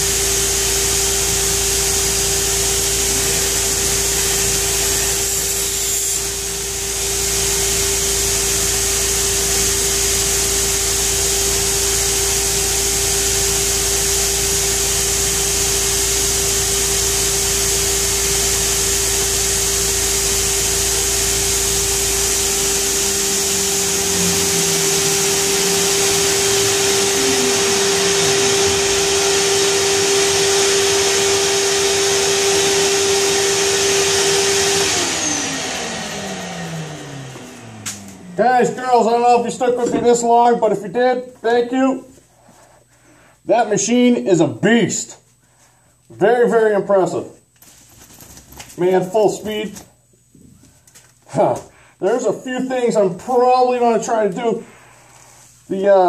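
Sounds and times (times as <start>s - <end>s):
motor whine: 0.0s - 39.1s
grinder belt hissing: 0.0s - 39.8s.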